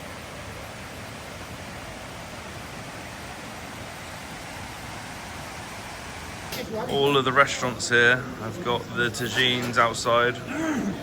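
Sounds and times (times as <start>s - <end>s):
waterfall rushing: 0.0s - 6.5s.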